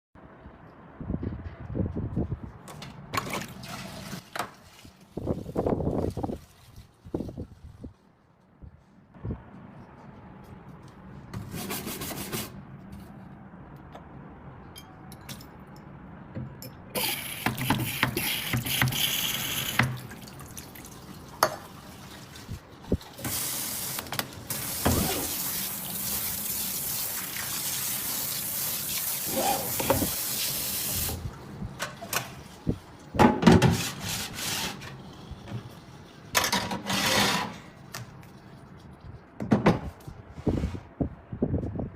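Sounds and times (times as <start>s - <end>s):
tap water running into metal sink: 23.2s - 31.2s.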